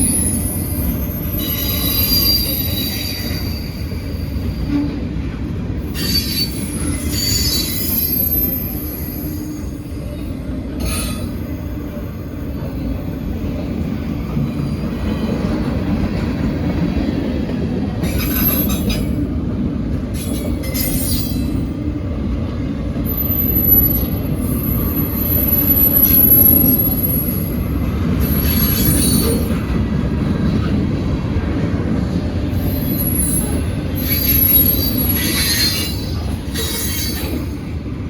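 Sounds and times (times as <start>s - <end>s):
high-pitched wheel squeal: 0.0s - 4.7s, 5.9s - 10.0s, 28.2s - 29.6s, 32.6s - 37.4s
train wheels rumbling on rail: 0.0s - 38.0s.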